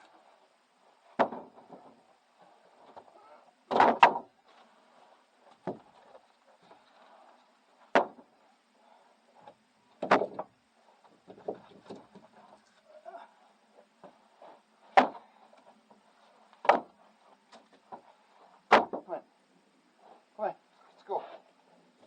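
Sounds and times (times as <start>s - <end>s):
firewood knocking on wood: 1.2s - 2.0s, 5.6s - 5.9s, 16.6s - 17.0s.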